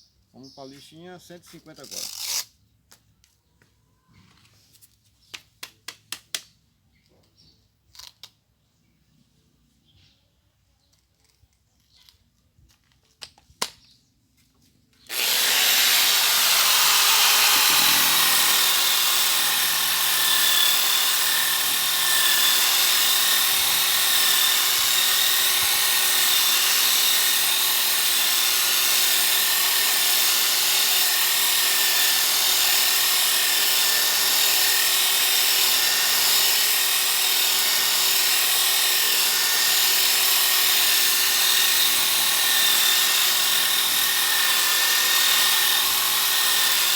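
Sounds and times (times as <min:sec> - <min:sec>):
drill whining: 0:15.0 - 0:46.9
sanding disc rasping on wood: 0:15.1 - 0:21.2.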